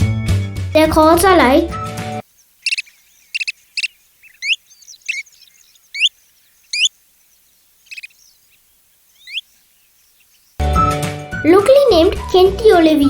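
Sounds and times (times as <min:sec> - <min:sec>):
bird whistled calls: 0:02.6 - 0:08.4, 0:09.0 - 0:11.1.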